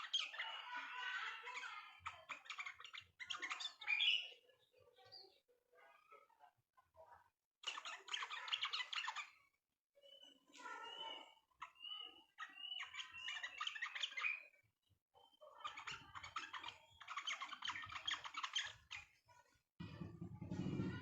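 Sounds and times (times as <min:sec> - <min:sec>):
songbird chirping: 0:07.6 - 0:19.2.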